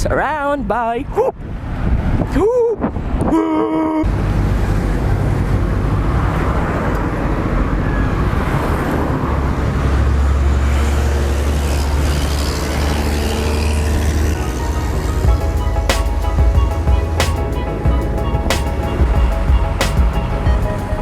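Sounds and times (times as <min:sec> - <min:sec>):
wind rumble: 0:00.6 - 0:03.4
road traffic: 0:04.0 - 0:21.0
vehicle engine rumble: 0:04.0 - 0:21.0.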